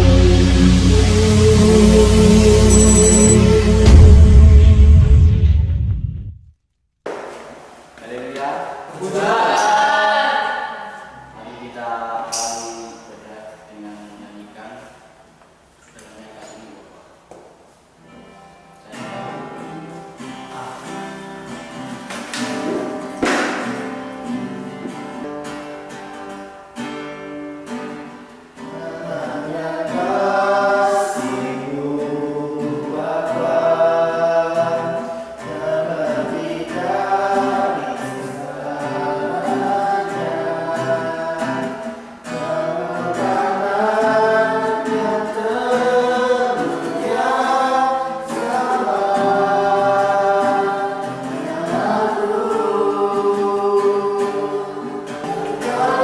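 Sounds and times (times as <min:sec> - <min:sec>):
group singing worship song: 0:00.0 - 0:04.0, 0:08.0 - 0:11.8, 0:22.0 - 0:25.2, 0:28.6 - 0:56.0
acoustic guitar strumming: 0:18.0 - 0:56.0.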